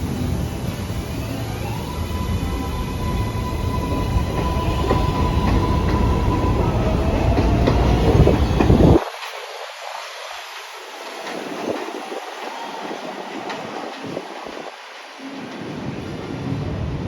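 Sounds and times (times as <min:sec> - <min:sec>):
train motor whine: 0:00.0 - 0:09.2
train rumble: 0:00.0 - 0:17.0
train wheels clattering on rails: 0:02.3 - 0:17.0.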